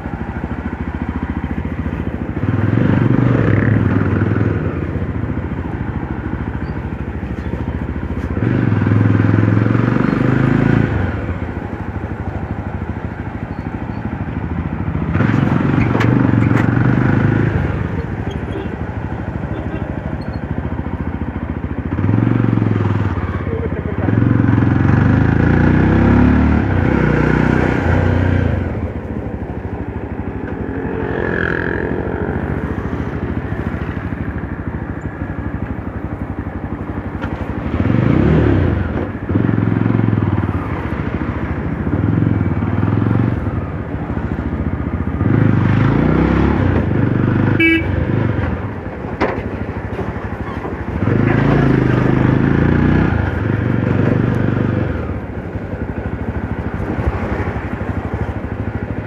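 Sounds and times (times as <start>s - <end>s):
motorcycle engine revving: 0.0s - 59.0s
motorcycle horn toot: 47.6s - 48.1s.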